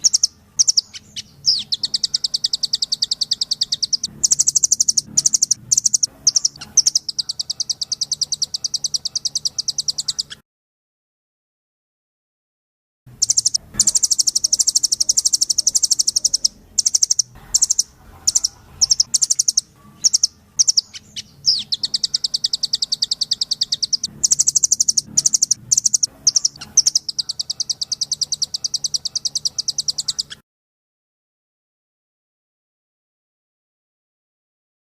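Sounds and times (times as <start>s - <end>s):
bird singing rapid trills: 0.0s - 10.4s, 13.1s - 30.4s.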